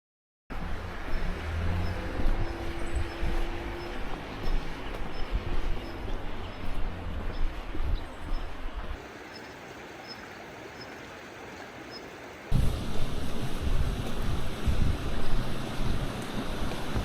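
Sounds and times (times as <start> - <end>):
motorcycle rumbling: 0.5 - 9.0, 12.5 - 17.0
even hiss: 12.1 - 17.0.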